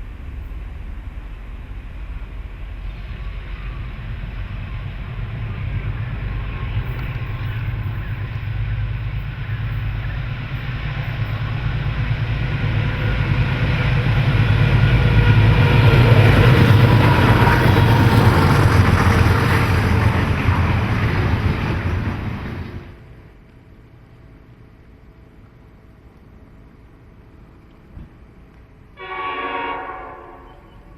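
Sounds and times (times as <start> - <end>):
diesel locomotive engine throbbing: 0.0 - 30.9
train rushing rumble: 0.0 - 30.9.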